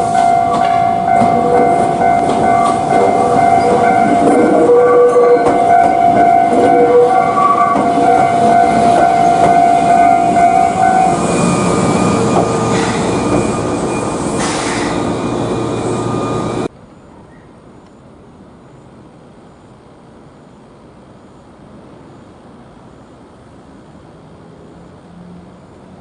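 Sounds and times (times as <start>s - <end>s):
steady tone: 0.0s - 16.7s
train running: 0.0s - 17.8s.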